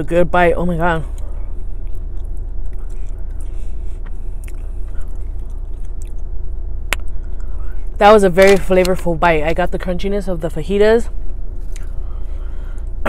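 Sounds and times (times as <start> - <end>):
car cabin hum: 0.0 - 13.0
crunchy chewing: 1.1 - 7.7.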